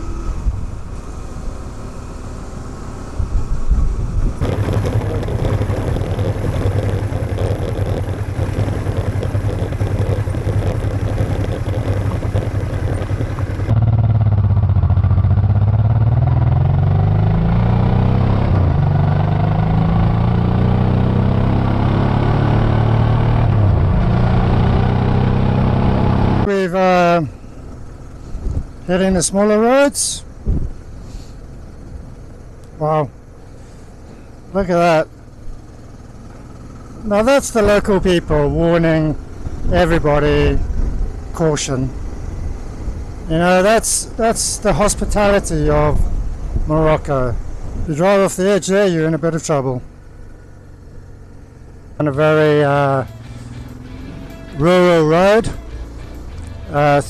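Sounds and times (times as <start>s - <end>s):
road noise: 0.0s - 57.0s
wind noise: 3.2s - 13.8s, 30.4s - 30.8s
motorcycle engine running: 4.1s - 26.5s, 30.3s - 47.8s, 49.1s - 57.0s.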